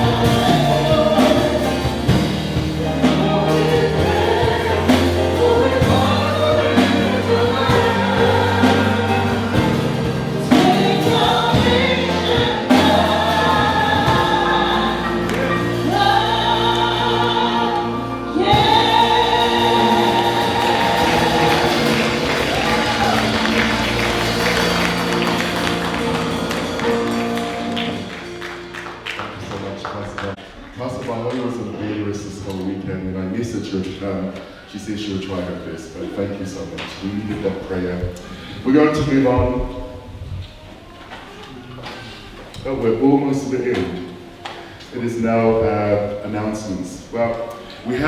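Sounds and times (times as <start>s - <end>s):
instrumental accompaniment: 0.0s - 29.9s
choir singing a gospel hymn: 0.0s - 30.3s.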